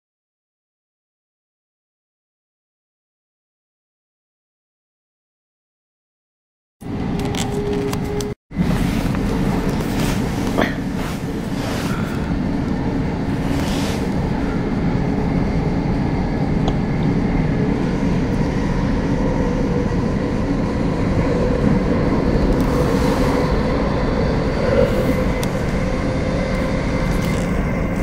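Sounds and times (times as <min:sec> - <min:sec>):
train wheels rumbling on rail: 0:06.8 - 0:28.0.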